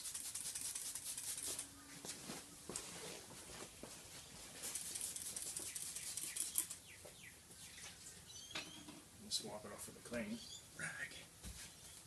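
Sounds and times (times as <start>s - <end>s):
spray bottle hissing: 0.0s - 1.7s, 4.7s - 6.7s.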